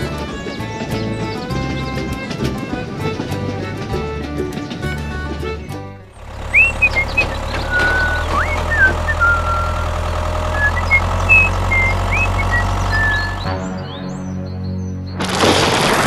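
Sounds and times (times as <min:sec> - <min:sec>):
small engine droning: 0:00.0 - 0:14.2
high whistled chirps: 0:06.4 - 0:14.0.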